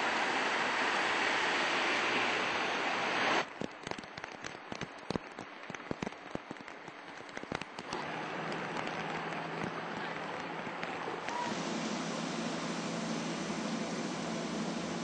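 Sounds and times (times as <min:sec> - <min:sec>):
raindrops pattering on a surface: 0:00.0 - 0:11.6
heavy rain hiss: 0:00.0 - 0:15.0
low hum: 0:07.9 - 0:15.0.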